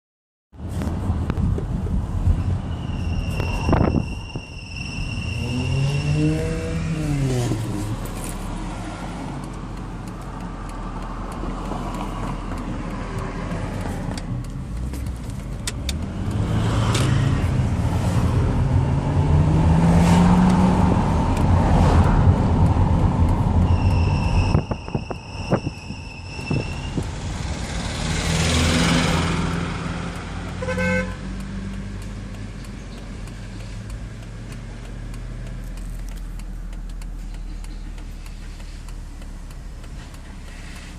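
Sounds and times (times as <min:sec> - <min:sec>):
high-pitched steady whistle: 0:02.7 - 0:07.1, 0:23.6 - 0:27.1
car engine revving: 0:04.8 - 0:40.9.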